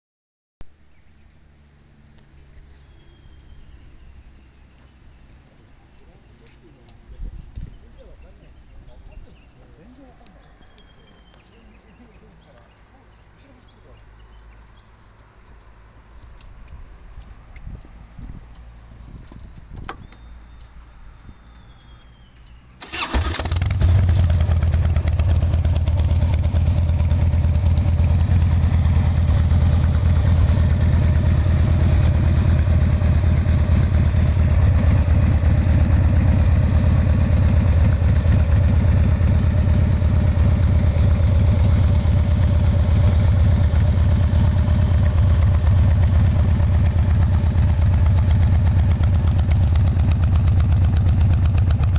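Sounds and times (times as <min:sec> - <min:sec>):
quiet clicks: 0:00.6 - 0:23.4, 0:24.3 - 0:51.9
motorcycle engine idling loudly: 0:23.5 - 0:51.9.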